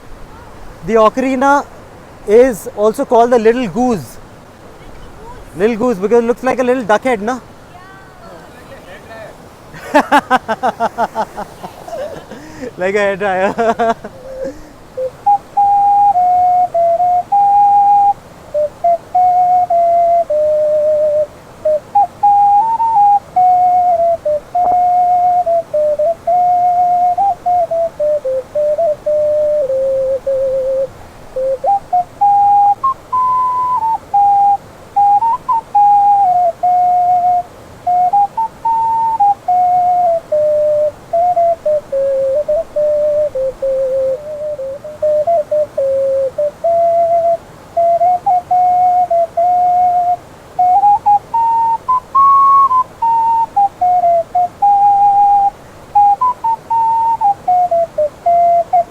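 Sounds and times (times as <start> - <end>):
ocarina melody: 2.3 - 4.2, 12.0 - 58.9.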